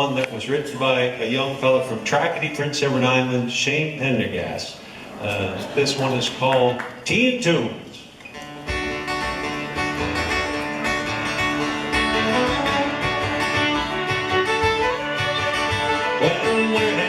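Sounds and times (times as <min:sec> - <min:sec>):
strummed guitars: 0:08.1 - 0:17.0
fiddle melody: 0:08.4 - 0:17.0.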